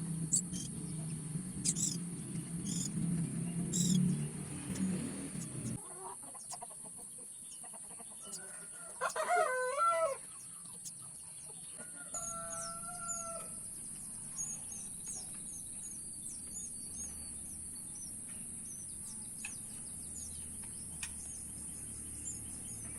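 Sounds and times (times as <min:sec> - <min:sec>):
high bird chirps: 0:00.2 - 0:05.8, 0:12.1 - 0:22.9
rooster crowing: 0:08.2 - 0:10.3, 0:11.8 - 0:13.7
high insect-like hiss: 0:12.0 - 0:22.9.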